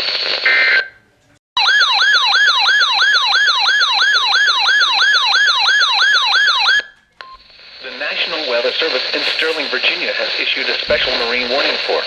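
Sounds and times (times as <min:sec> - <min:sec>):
electronic siren alert tone: 0:01.6 - 0:06.9.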